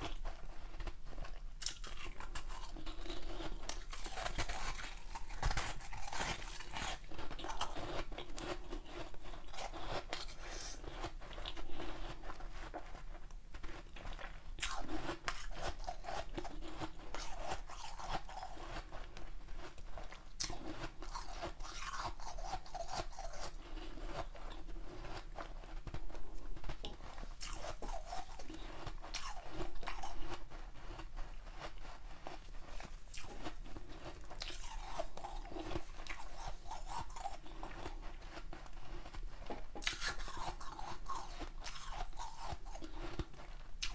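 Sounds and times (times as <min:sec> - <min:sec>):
person chewing ice: 0:00.0 - 0:43.9.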